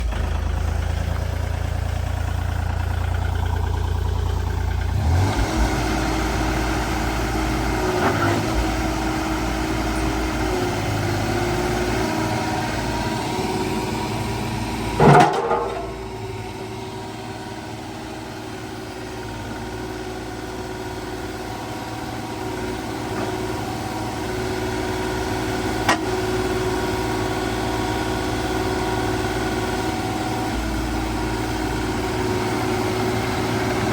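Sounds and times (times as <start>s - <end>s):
excavator diesel engine running: 0.0s - 33.9s
loud metal clank: 15.0s - 16.1s.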